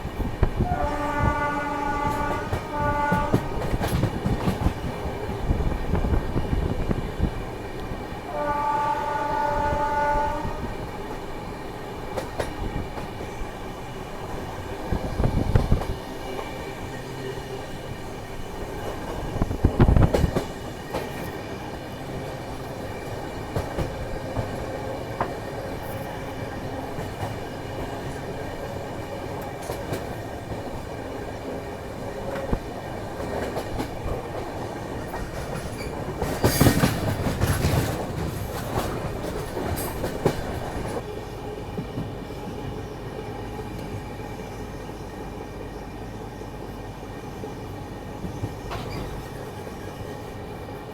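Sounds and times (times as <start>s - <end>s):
train wheels clattering: 0.0s - 8.0s, 9.0s - 13.6s, 14.2s - 41.1s, 48.1s - 50.3s
locomotive horn: 0.6s - 3.6s, 8.3s - 10.8s.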